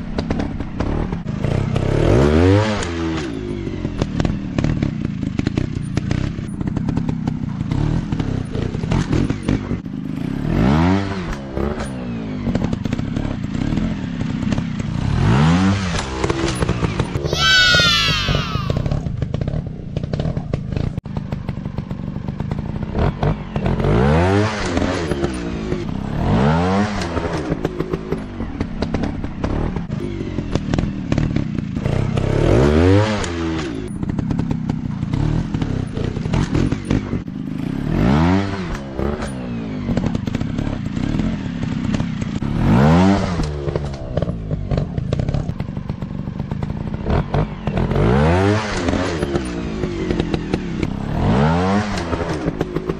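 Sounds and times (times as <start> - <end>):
dirt bike engine revving: 0.2 - 20.9, 22.4 - 45.5, 46.6 - 52.9.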